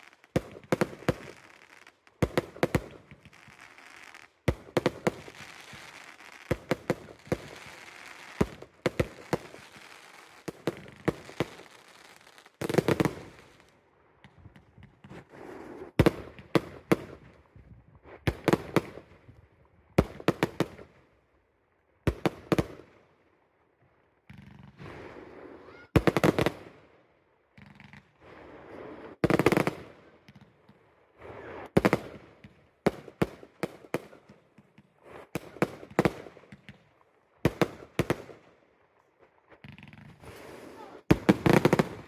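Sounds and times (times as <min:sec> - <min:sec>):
fireworks cracking bangs: 0:00.0 - 0:17.4, 0:24.2 - 0:26.8, 0:27.6 - 0:36.9, 0:39.5 - 0:42.0.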